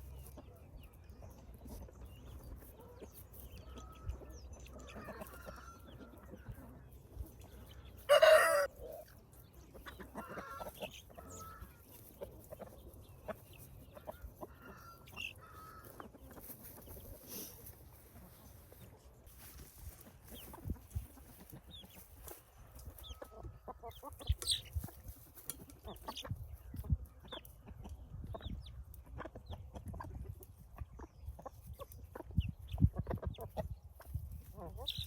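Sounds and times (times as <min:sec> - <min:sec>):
chickens clucking softly: 0:00.0 - 0:35.0
chicken squawk: 0:08.0 - 0:09.1, 0:09.8 - 0:12.0, 0:14.0 - 0:16.3.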